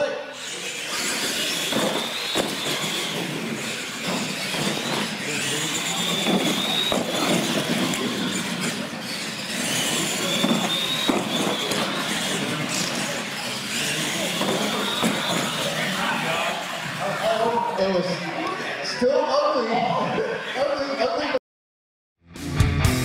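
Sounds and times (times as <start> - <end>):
trucks rumbling: 0.4 - 17.6.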